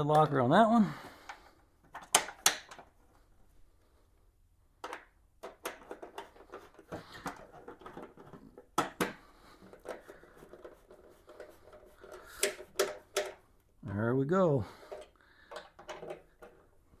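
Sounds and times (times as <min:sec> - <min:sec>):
small parts clicking and tapping: 0:01.3 - 0:03.0, 0:04.8 - 0:13.4, 0:14.9 - 0:16.7.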